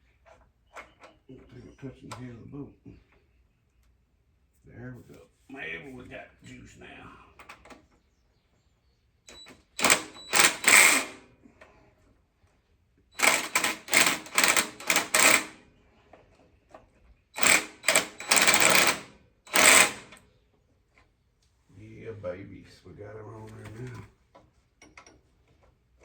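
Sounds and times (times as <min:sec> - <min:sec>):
ratchet tool clicking: 0:09.8 - 0:11.2, 0:13.2 - 0:15.5, 0:17.4 - 0:20.1.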